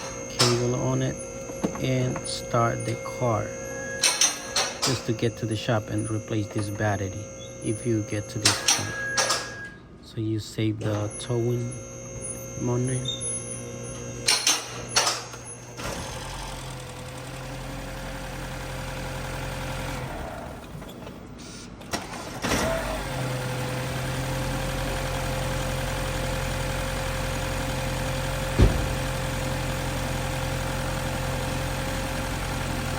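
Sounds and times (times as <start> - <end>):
car starting: 26.8 - 31.8
car running hum: 26.8 - 32.9
sharp knock: 28.6 - 29.2.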